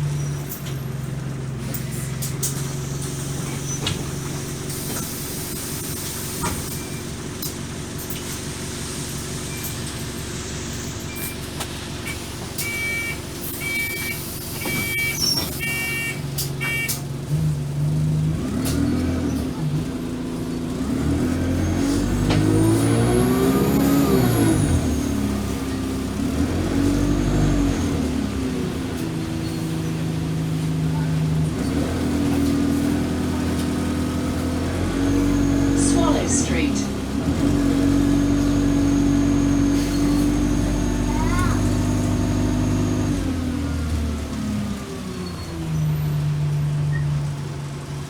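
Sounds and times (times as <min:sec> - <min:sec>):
bus diesel engine running: 0:00.0 - 0:48.0
electronic warning beep: 0:12.0 - 0:17.0.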